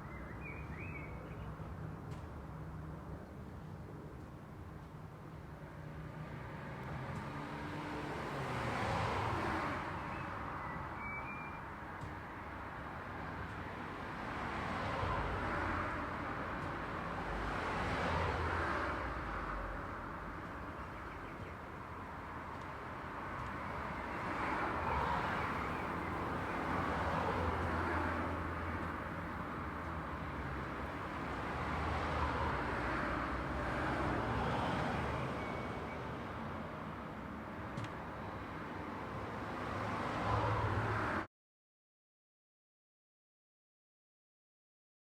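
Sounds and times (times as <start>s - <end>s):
cars passing: 5.9s - 10.8s, 13.3s - 41.3s.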